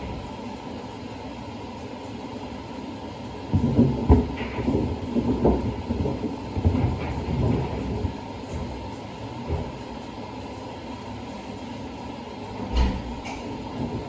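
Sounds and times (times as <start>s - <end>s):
washing machine hum: 0.0s - 14.0s
shoes thumping in washer drum: 3.5s - 10.1s.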